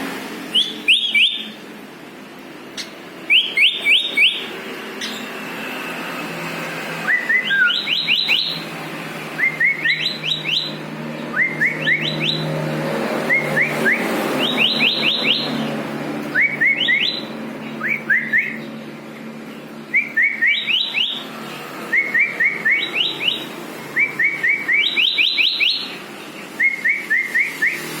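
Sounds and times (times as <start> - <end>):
bird singing whistled notes: 0.5 - 1.6, 2.8 - 5.4, 7.0 - 8.6, 9.4 - 12.6, 13.3 - 15.7, 16.3 - 18.7, 19.9 - 21.3, 21.9 - 28.0.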